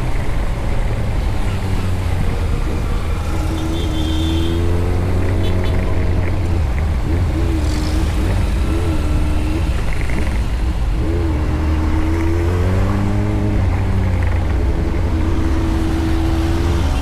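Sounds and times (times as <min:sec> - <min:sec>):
motorcycle engine running: 0:00.0 - 0:12.2
road and wind noise: 0:00.0 - 0:17.0.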